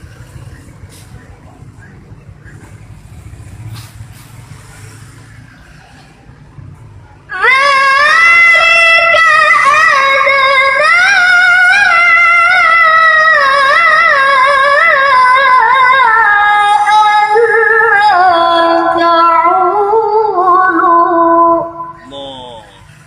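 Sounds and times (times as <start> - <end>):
girl reciting melodically: 7.3 - 22.4.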